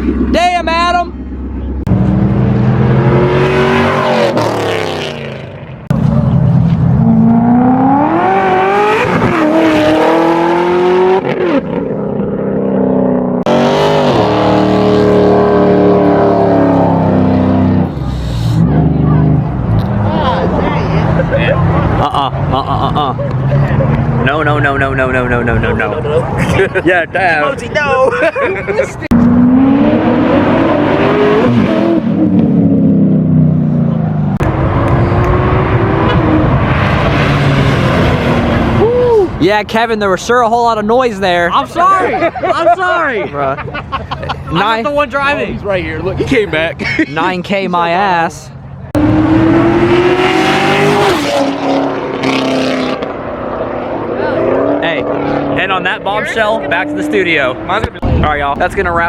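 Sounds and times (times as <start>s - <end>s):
car engine accelerating hard: 1.2s - 26.4s, 29.1s - 38.9s, 48.9s - 58.3s.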